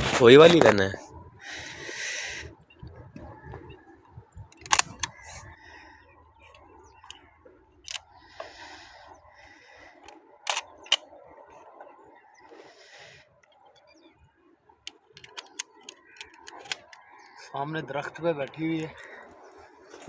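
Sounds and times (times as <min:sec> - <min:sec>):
sharp mechanical gun clicks: 0:04.5 - 0:05.2, 0:10.0 - 0:11.1.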